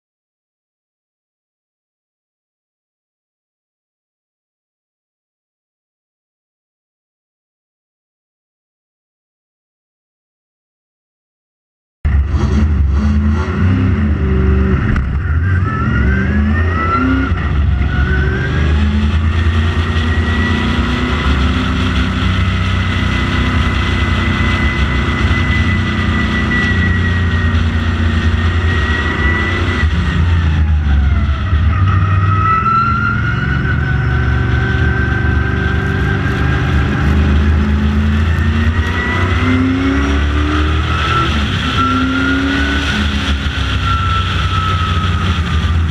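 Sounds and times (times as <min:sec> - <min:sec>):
race car engine revving: 0:12.1 - 0:45.9.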